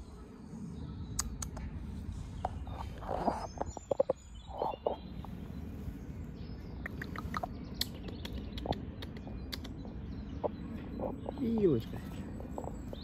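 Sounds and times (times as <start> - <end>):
low outdoor rumble: 0.0 - 13.0
small birds chirping: 0.0 - 13.0
sharp ticks: 6.8 - 10.6.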